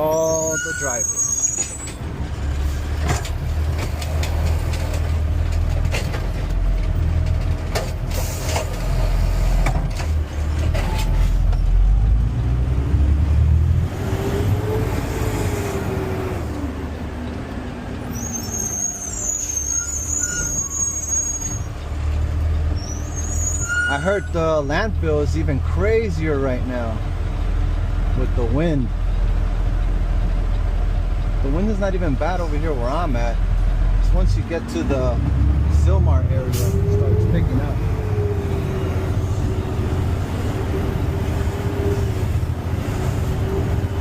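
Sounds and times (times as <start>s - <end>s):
truck engine rumble: 0.0s - 44.0s
clunks: 3.0s - 9.0s.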